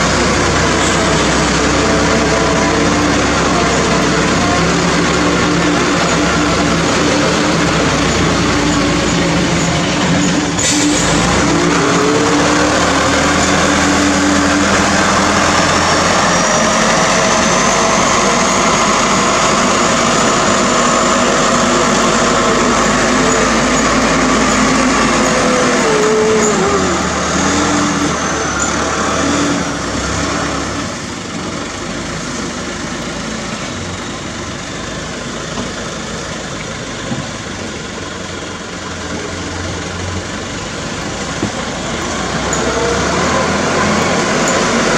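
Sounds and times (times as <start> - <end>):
road noise: 0.0 - 44.9
truck diesel engine running: 0.0 - 44.9.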